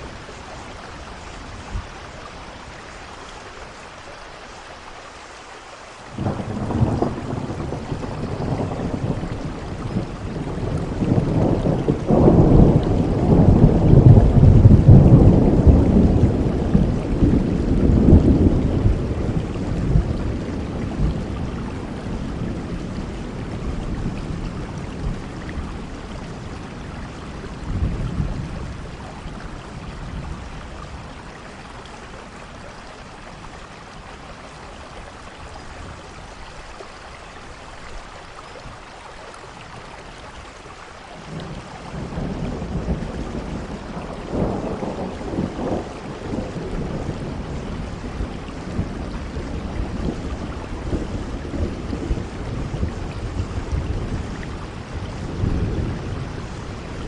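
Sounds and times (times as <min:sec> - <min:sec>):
steady rainfall: 0:00.0 - 0:57.0
rolling thunder: 0:06.1 - 0:32.4, 0:41.2 - 0:57.0.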